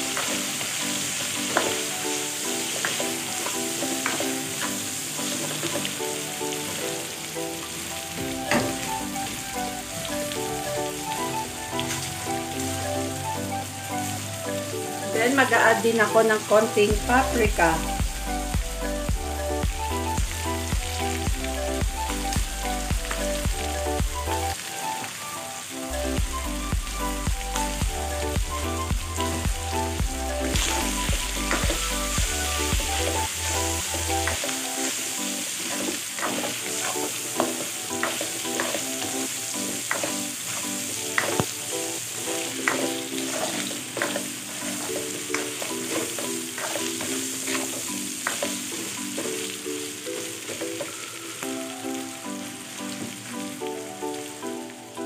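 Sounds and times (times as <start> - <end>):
chicken sizzling in butter: 0.0 - 55.0
background music with bass: 16.6 - 24.6, 25.8 - 34.4
spatula scraping and knocking pan: 35.6 - 41.5, 42.6 - 49.6.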